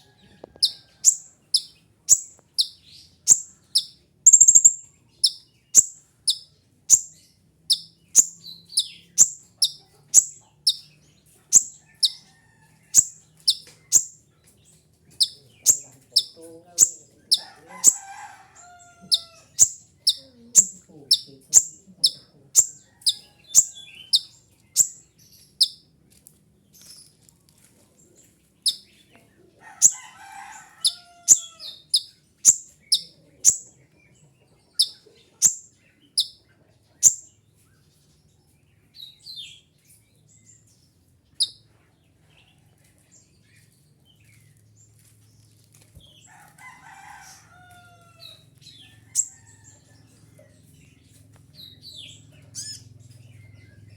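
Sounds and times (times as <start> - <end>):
bird high falling chirps: 0.6 - 7.1.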